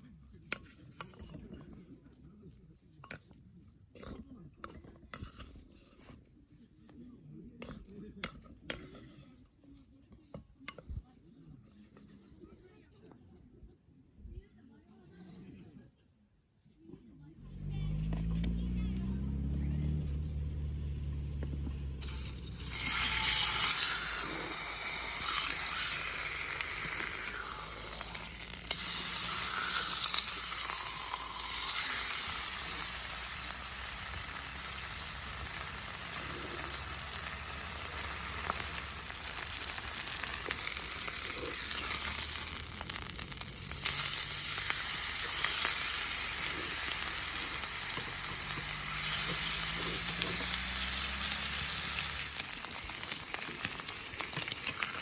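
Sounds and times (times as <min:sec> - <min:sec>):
food sizzling in hot pan: 0:21.9 - 0:55.0.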